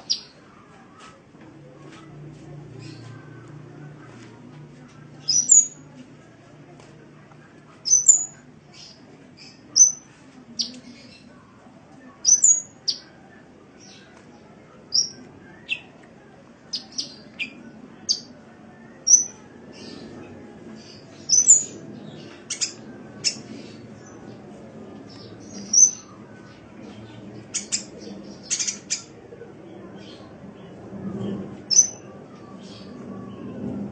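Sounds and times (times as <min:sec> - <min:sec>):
faint low hum: 0:00.0 - 0:33.9
bird chirping: 0:05.2 - 0:05.8, 0:07.8 - 0:10.0, 0:12.2 - 0:13.0, 0:21.2 - 0:23.8.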